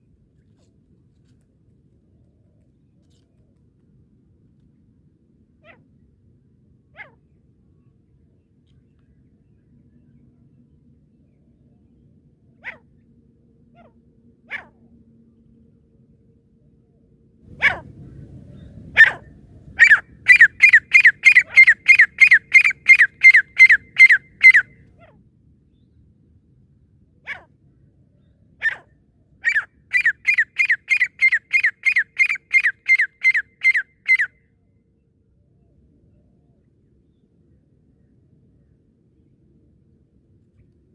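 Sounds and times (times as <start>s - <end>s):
francolin calling: 19.8s - 24.7s, 29.4s - 34.3s.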